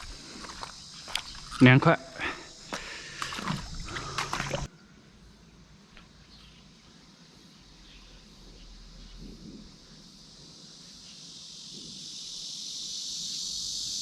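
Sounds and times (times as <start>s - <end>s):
stream water running: 0.0s - 4.7s.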